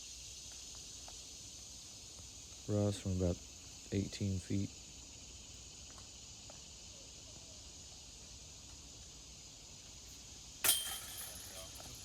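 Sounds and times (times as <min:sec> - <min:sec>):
insects droning: 0:00.0 - 0:12.0
disc hitting basket chains: 0:10.5 - 0:12.0.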